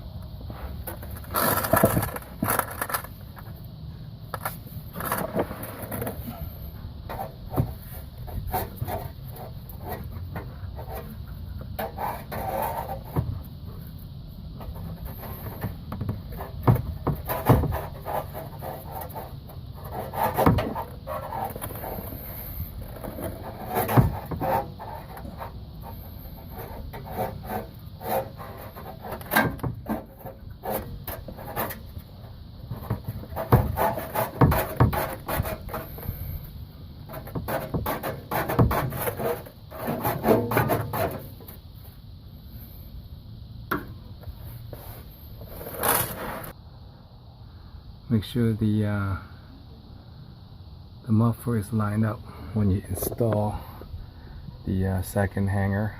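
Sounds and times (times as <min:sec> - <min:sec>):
knocks and clanks on car exhaust: 0:15.6 - 0:17.8.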